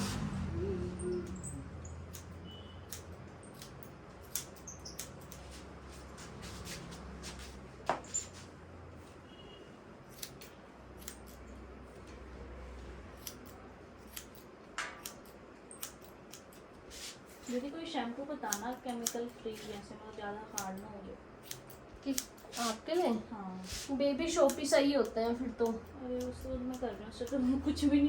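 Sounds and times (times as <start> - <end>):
scissors snipping hair: 1.2 - 5.6, 10.1 - 11.5, 13.2 - 17.7, 18.4 - 27.9.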